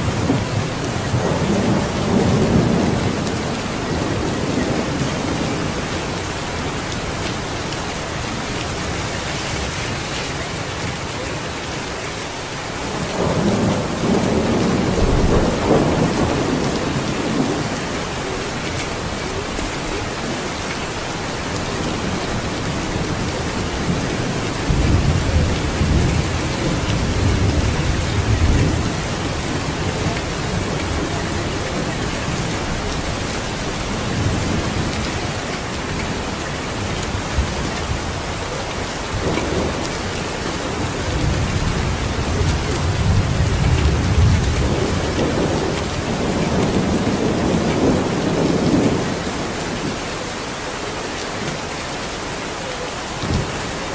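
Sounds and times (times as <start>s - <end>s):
thunder rumbling: 0.0s - 11.2s, 12.6s - 50.0s
heavy rain: 0.0s - 53.9s.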